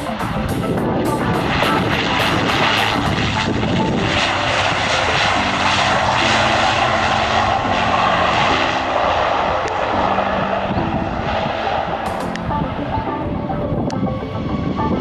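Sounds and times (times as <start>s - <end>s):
aircraft engines running: 0.0s - 15.0s.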